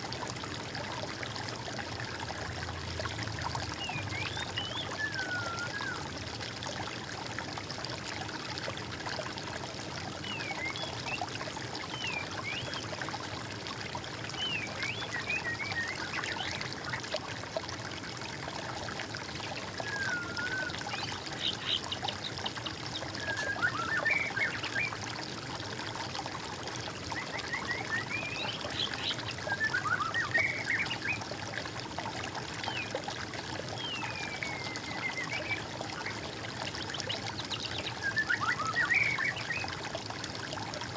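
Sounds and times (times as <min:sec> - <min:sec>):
water trickling and splashing: 0:00.0 - 0:40.9
songbirds singing: 0:03.7 - 0:06.0, 0:14.3 - 0:16.7, 0:19.7 - 0:25.0, 0:27.0 - 0:31.3, 0:33.7 - 0:36.2, 0:36.8 - 0:39.7.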